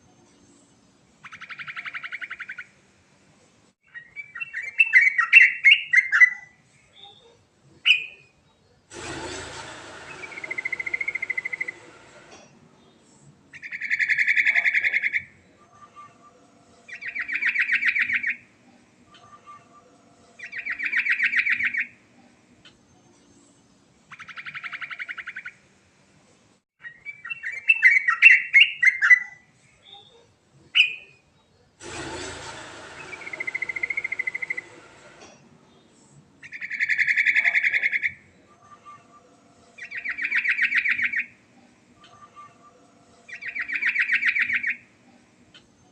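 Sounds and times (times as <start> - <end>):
hiss: 8.9 - 13.3, 31.8 - 36.2.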